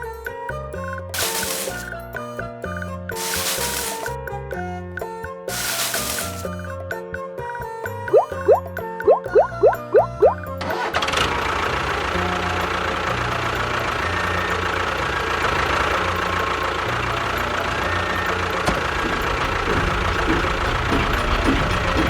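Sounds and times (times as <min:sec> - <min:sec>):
short mechanical sounds: 0:01.2 - 0:01.9
engine idling: 0:10.5 - 0:22.0.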